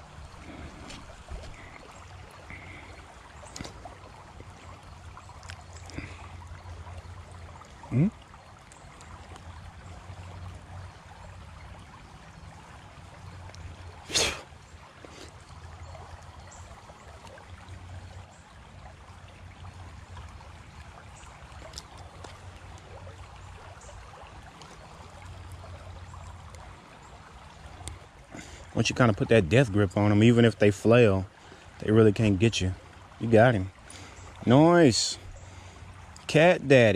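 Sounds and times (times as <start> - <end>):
creek water running: 0.0 - 36.9.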